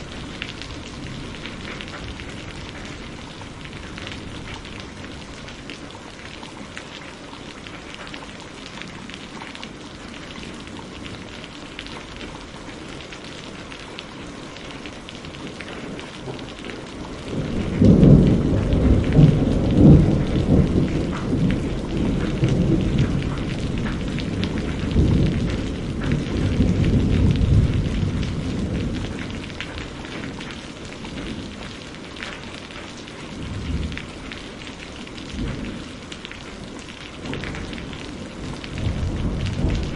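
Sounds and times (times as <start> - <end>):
rain falling: 0.0 - 39.9
thunder rumbling: 15.8 - 32.3, 33.3 - 39.9.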